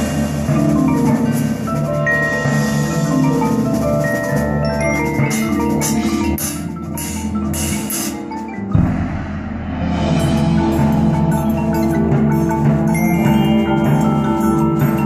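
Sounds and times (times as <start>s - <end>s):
marching band playing: 0.0s - 15.0s
marimba and bells: 0.0s - 15.0s
cymbal crashes: 5.4s - 13.2s
loud low drum hit: 8.8s - 12.2s.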